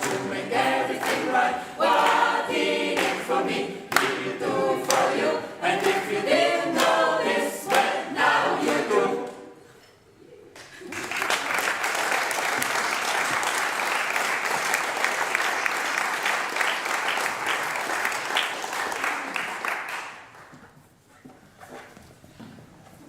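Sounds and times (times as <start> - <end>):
audience applauding: 10.6 - 20.5.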